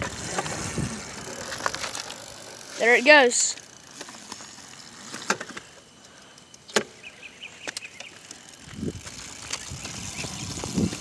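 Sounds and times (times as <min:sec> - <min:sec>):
electric motor low rumble: 0:00.0 - 0:11.0.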